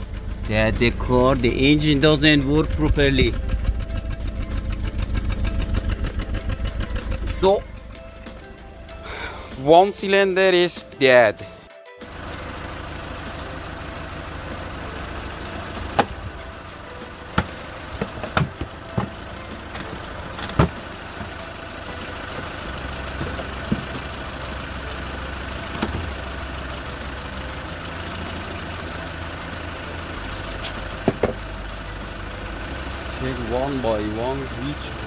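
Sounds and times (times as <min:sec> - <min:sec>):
car engine idling roughly: 0:00.0 - 0:09.8, 0:12.0 - 0:35.0
plastic engine cover knocks: 0:17.4 - 0:19.2, 0:19.8 - 0:21.3, 0:23.2 - 0:24.1, 0:31.0 - 0:31.4.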